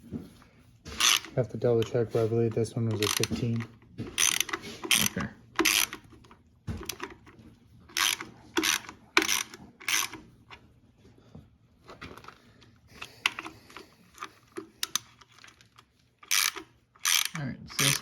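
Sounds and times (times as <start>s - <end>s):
socket ratchet clicking: 2.9s - 6.1s, 8.0s - 10.2s, 16.2s - 18.0s.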